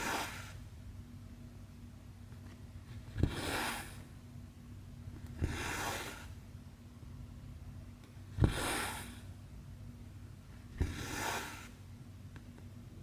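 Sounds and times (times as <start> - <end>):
faint steady hum: 0.0 - 13.0
thread rasping through fabric: 3.0 - 4.1.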